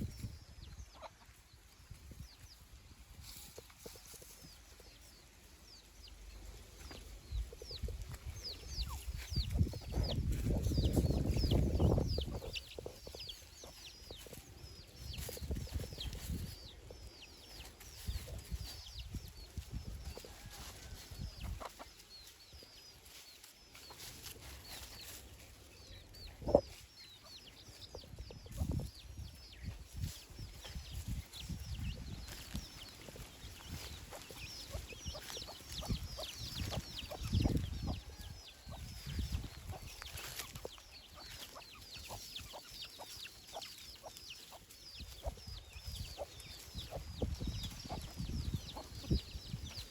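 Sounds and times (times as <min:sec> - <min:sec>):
chickens clucking: 0:00.0 - 0:49.9.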